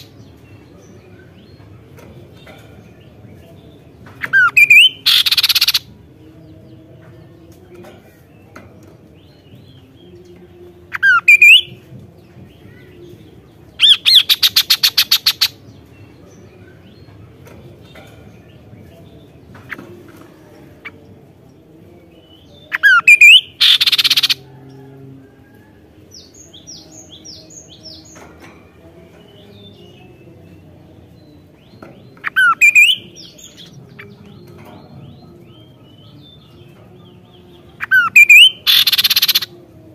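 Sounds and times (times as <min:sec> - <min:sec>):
bird calling: 0:04.3 - 0:05.8, 0:37.8 - 0:39.5.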